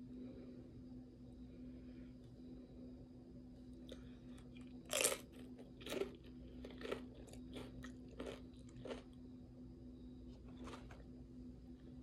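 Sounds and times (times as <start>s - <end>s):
tortilla chips crunching: 3.9s - 9.2s, 10.4s - 11.1s.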